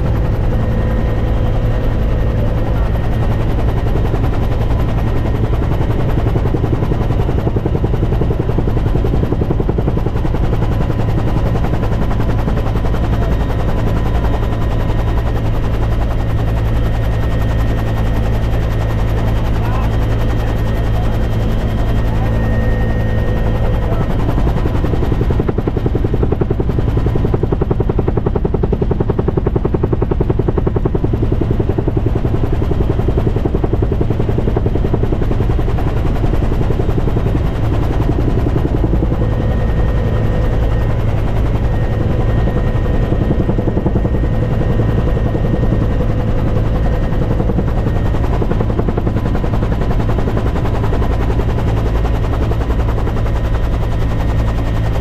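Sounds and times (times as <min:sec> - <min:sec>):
helicopter rotor chopping: 0:00.0 - 0:55.0.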